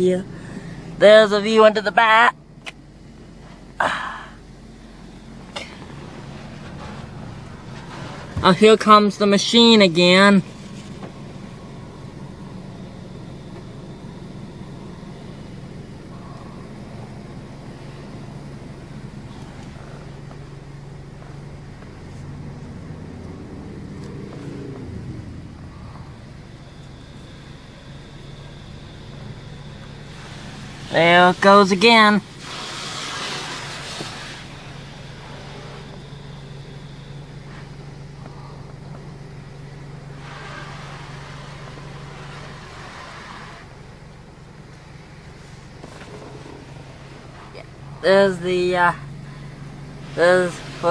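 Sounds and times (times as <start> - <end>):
low hum: 0.0 - 50.9
car wash spraying water: 4.8 - 38.5, 39.2 - 50.9
water spray hissing on car: 29.8 - 36.6, 40.0 - 44.1, 49.9 - 50.9.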